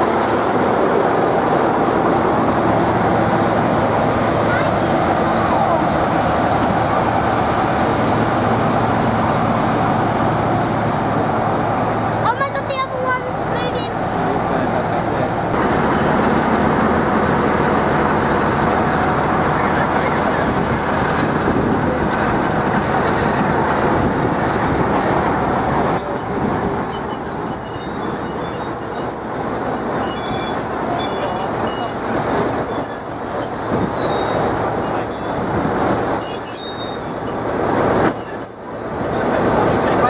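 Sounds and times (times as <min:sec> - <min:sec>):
train rumbling on rails: 0:00.0 - 0:40.0
high wheel squeal: 0:04.2 - 0:04.8, 0:11.4 - 0:14.0, 0:25.1 - 0:38.8.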